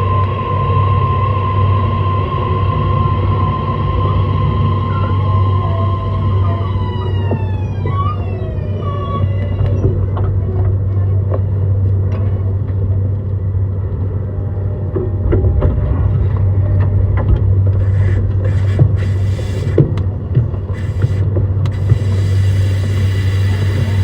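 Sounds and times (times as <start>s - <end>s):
electric train inverter whine: 0.0s - 24.0s
traction motor hum: 0.0s - 24.0s
burst of hiss: 17.8s - 19.9s, 20.7s - 24.0s.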